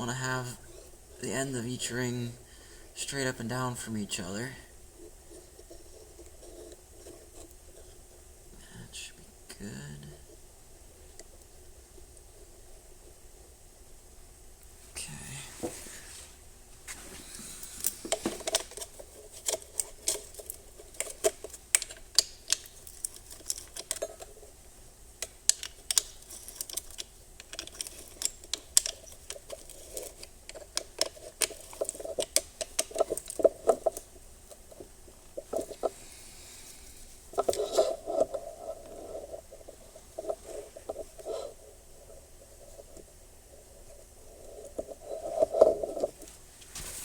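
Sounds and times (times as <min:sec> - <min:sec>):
metal parts clicking and clinking: 0:25.5 - 0:33.5.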